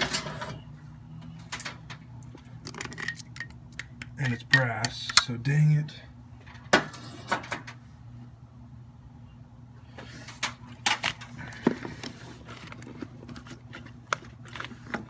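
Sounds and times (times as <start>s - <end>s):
steady low hum: 0.0s - 15.0s
tools and small parts clicking: 1.5s - 5.3s.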